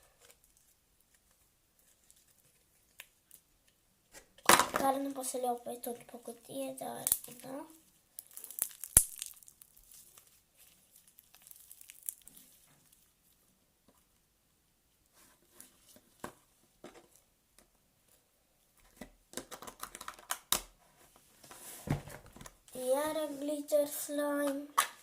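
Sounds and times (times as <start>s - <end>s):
slime crackling when squeezed: 8.2s - 12.6s.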